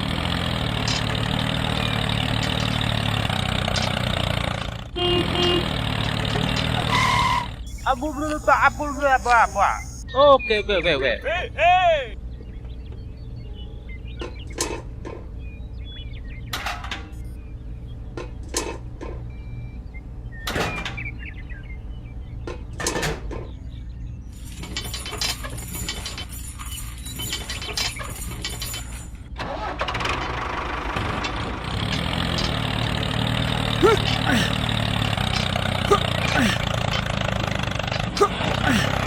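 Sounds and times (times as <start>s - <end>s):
model tractor humming: 0.0s - 10.0s, 29.5s - 39.0s.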